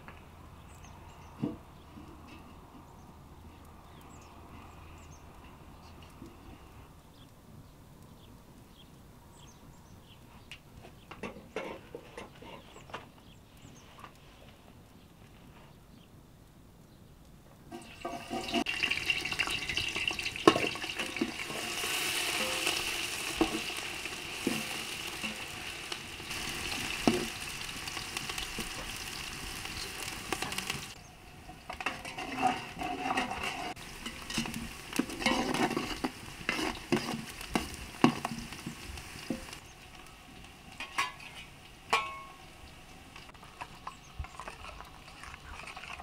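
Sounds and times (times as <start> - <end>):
food sizzling in hot oil: 17.7 - 39.7
spoon stirring and knocking on pot: 31.7 - 39.5.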